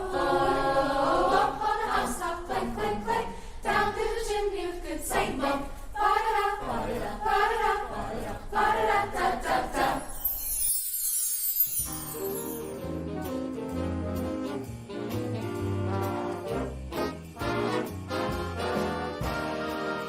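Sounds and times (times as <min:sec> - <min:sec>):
choir singing in harmony: 0:00.0 - 0:10.6, 0:11.9 - 0:20.0
high hiss: 0:09.8 - 0:13.0.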